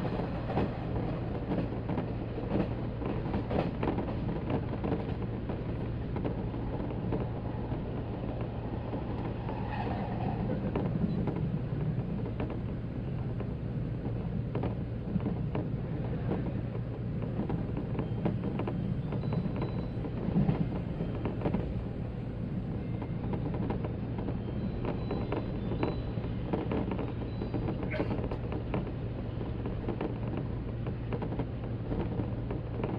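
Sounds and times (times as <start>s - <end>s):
wheels clicking on track: 0.4s - 32.9s.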